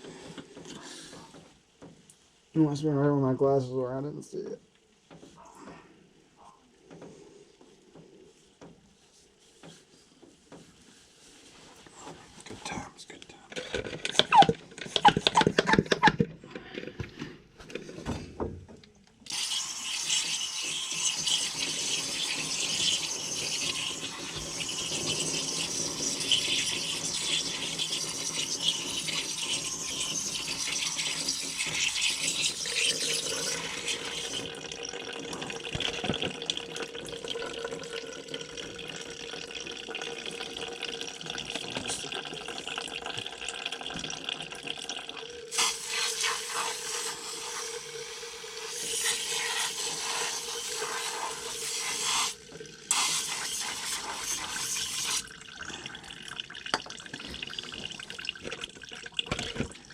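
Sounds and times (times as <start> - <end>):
water spray hissing: 45.5 - 55.2.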